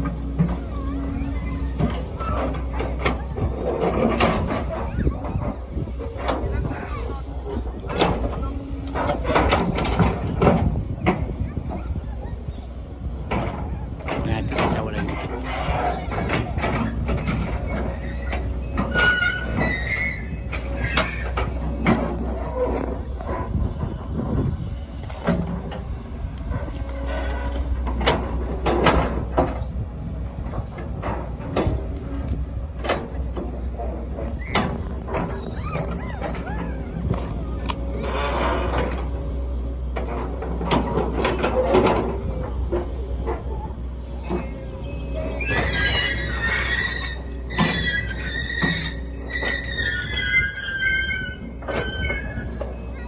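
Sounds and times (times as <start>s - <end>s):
excavator diesel engine: 0.0s - 53.0s
high-pitched metallic squeal: 17.7s - 21.4s, 44.8s - 53.0s.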